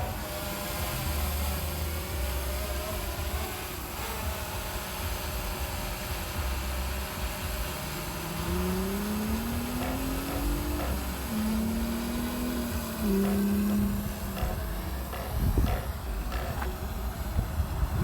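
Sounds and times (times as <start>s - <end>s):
drone propellers humming: 0.0s - 18.0s
rising tone: 7.1s - 18.0s
wind buffeting microphone: 8.3s - 18.0s.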